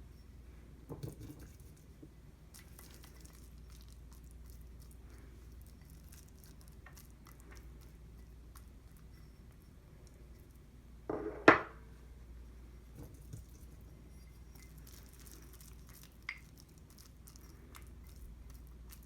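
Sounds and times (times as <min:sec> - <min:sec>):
dish set down with a knock: 0:11.1 - 0:11.8.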